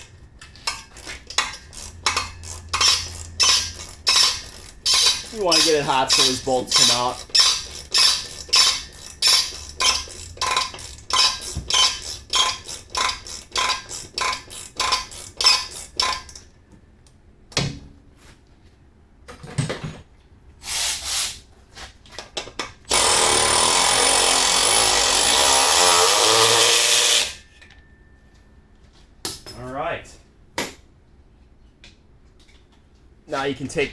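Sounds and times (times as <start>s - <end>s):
power tool running: 22.9s - 27.4s.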